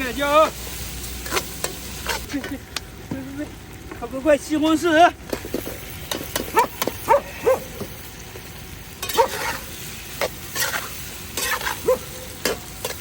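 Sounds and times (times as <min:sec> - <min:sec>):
food sizzling in a pot: 0:00.0 - 0:13.0
spatula scraping metal pot: 0:09.0 - 0:09.7, 0:10.4 - 0:11.8.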